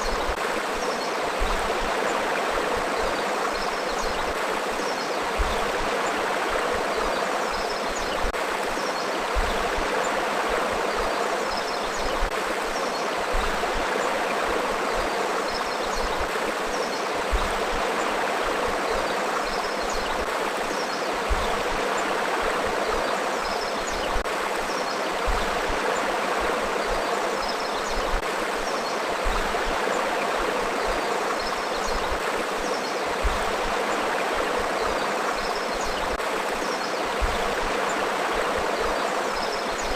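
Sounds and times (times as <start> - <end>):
river water rushing and babbling: 0.0 - 39.9.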